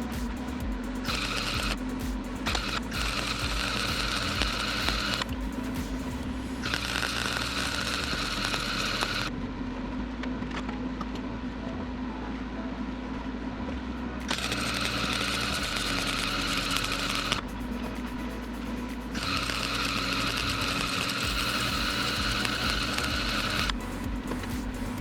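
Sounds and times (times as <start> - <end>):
low hum: 0.0 - 25.0
welding arc hissing: 14.4 - 25.0.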